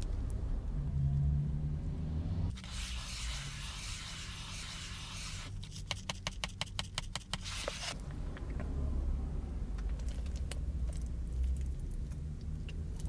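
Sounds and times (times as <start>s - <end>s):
low rumble: 8.0s - 12.7s.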